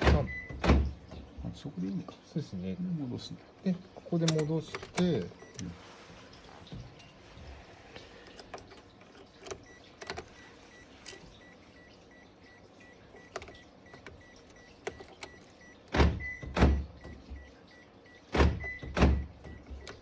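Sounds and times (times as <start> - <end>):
faint rapid beeping: 0.0 - 0.8, 4.3 - 5.8, 9.4 - 20.0
power door locks thunking: 0.0 - 1.6, 4.2 - 5.7, 13.2 - 17.5, 18.3 - 20.0.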